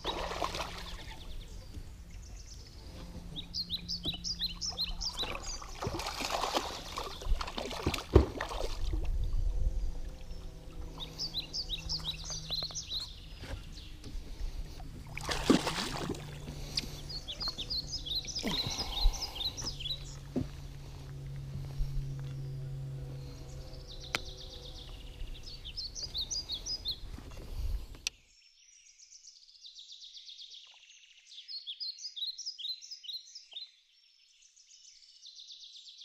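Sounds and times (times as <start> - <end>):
fish splashing at water surface: 0.0 - 1.0, 5.1 - 9.1, 15.1 - 16.6
low steady hum: 0.0 - 28.1.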